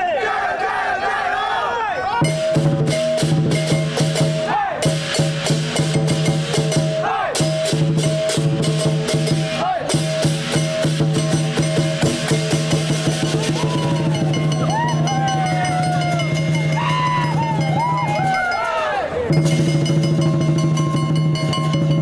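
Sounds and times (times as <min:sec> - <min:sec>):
voices calling out: 0:00.0 - 0:02.6, 0:11.3 - 0:19.7
festive drum and cymbal music: 0:02.2 - 0:22.0.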